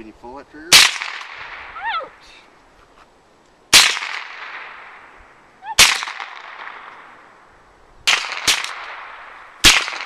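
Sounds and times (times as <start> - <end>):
gunshots with long echo: 0.7 - 1.8, 3.7 - 5.1, 5.8 - 7.4, 8.0 - 10.0.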